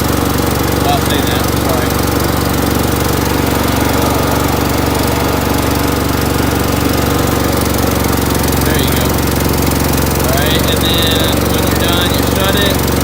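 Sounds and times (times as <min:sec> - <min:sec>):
skid steer engine running: 0:00.0 - 0:13.0.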